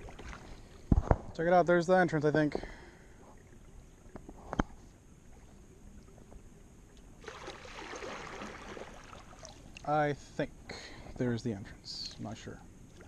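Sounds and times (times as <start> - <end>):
paddle strokes splashing in water: 0.0 - 0.8, 7.2 - 9.8.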